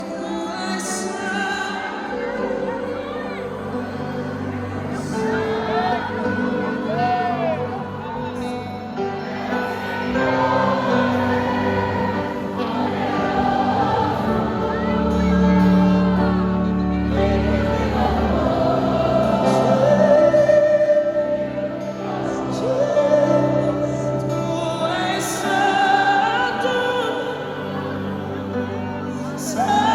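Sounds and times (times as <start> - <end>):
gospel singing: 0.0 - 29.9
sustained instrumental accompaniment: 0.0 - 29.9.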